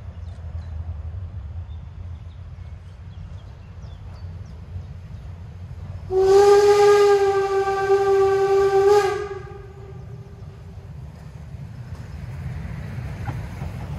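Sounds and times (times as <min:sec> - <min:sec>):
steam locomotive whistle: 0:06.1 - 0:10.4.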